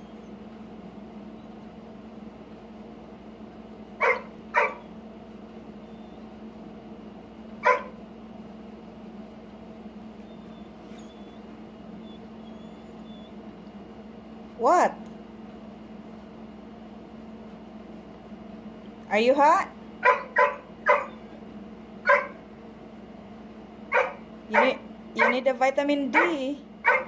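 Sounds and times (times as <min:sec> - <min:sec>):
steady low hum: 0:00.0 - 0:27.0
dog barking: 0:04.0 - 0:04.9, 0:07.6 - 0:08.0, 0:20.0 - 0:21.3, 0:22.0 - 0:22.4, 0:23.9 - 0:25.5, 0:26.1 - 0:27.0.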